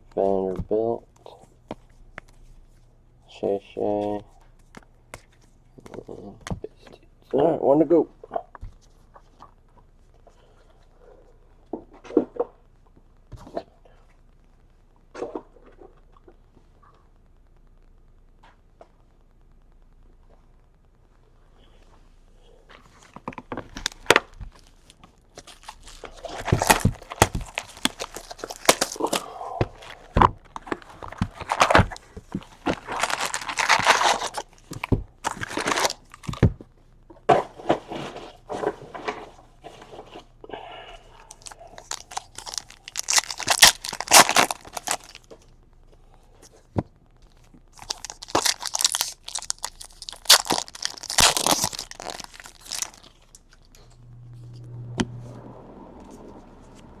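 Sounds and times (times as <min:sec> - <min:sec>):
card pack wrappers tearing and crinkling: 0:23.1 - 0:36.5, 0:41.2 - 0:45.5, 0:47.2 - 0:53.7.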